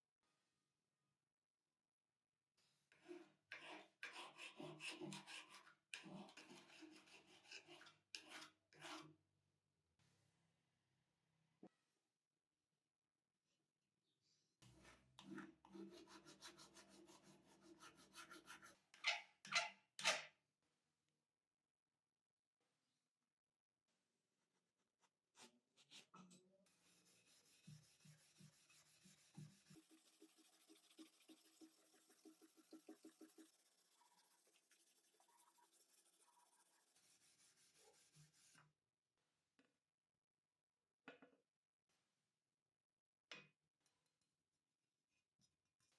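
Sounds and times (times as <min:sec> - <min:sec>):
rubbing or filing strokes: 0:03.5 - 0:09.0, 0:14.7 - 0:19.6, 0:25.4 - 0:38.6.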